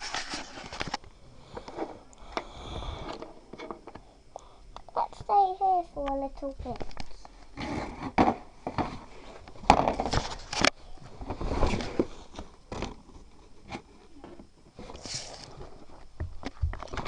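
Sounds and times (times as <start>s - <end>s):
small objects being handled: 0.0s - 1.0s.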